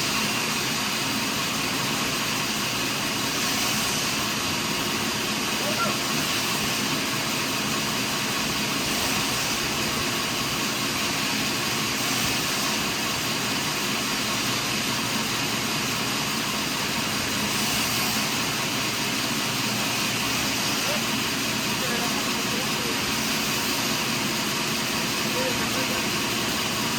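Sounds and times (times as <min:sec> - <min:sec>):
sawmill machinery running: 0:00.0 - 0:26.9.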